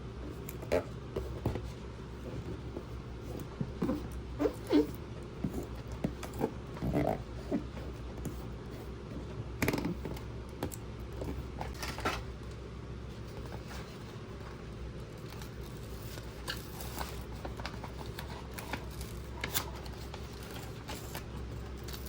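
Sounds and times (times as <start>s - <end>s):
packaging rustling: 15.2s - 22.0s.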